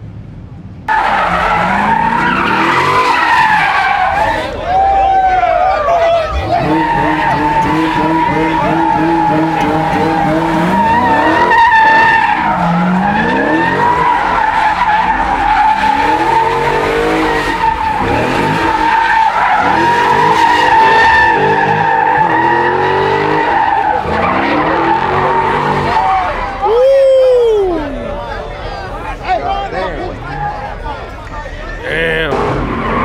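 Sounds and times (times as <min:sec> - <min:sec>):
car engine revving: 0:00.9 - 0:04.9, 0:06.0 - 0:26.7, 0:31.8 - 0:33.0
car tyres squealing: 0:00.9 - 0:33.0.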